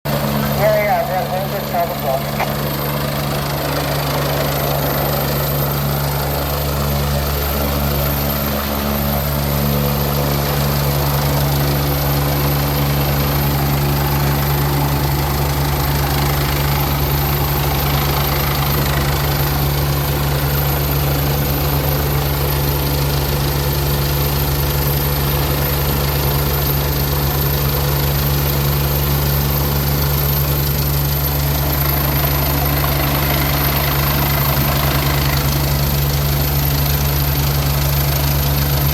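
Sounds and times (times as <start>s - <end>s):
heavy engine humming: 0.1s - 7.2s, 28.1s - 38.9s.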